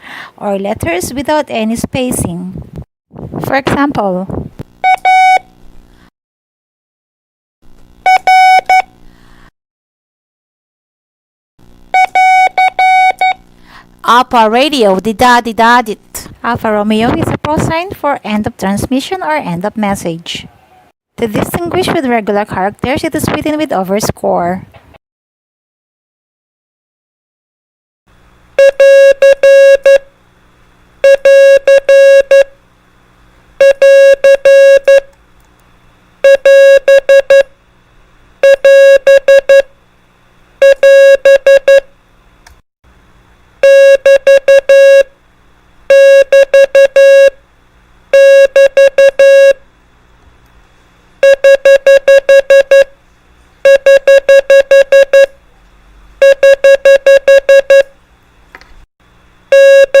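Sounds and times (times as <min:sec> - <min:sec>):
morse code beeps: 0:04.8 - 0:05.4, 0:08.1 - 0:08.9, 0:12.0 - 0:13.4, 0:28.6 - 0:30.0, 0:31.0 - 0:32.5, 0:33.6 - 0:35.1, 0:36.2 - 0:37.5, 0:38.4 - 0:39.7, 0:40.6 - 0:41.9, 0:43.6 - 0:45.1, 0:45.9 - 0:47.4, 0:48.2 - 0:49.6, 0:51.2 - 0:52.9, 0:53.6 - 0:55.4, 0:56.2 - 0:57.9, 0:59.5 - 1:00.0.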